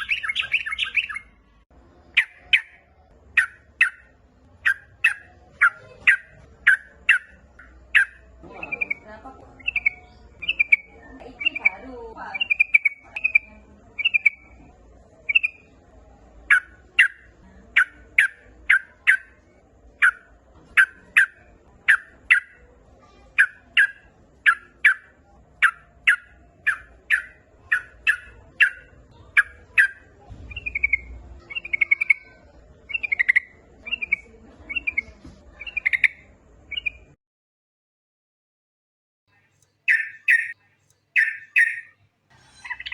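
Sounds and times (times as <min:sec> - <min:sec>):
bulbul calling: 0:00.0 - 0:01.4, 0:02.1 - 0:14.5, 0:16.5 - 0:19.4, 0:23.4 - 0:32.3, 0:39.8 - 0:42.9.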